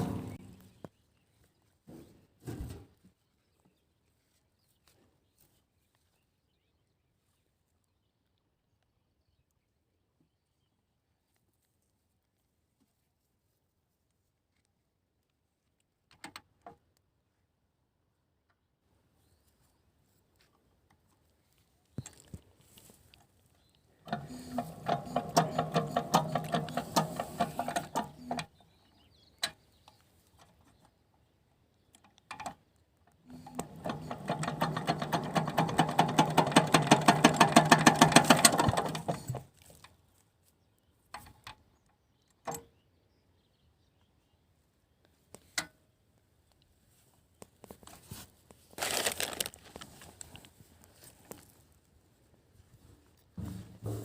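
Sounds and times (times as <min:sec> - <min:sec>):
water pump engine turning over: 0:00.0 - 0:00.4, 0:24.1 - 0:28.5, 0:33.3 - 0:39.4.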